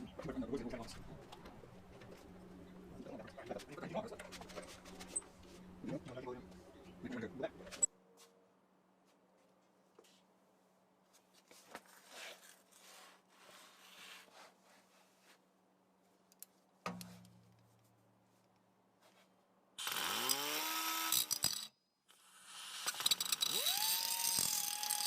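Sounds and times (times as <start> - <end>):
power tool running: 19.8 - 25.0.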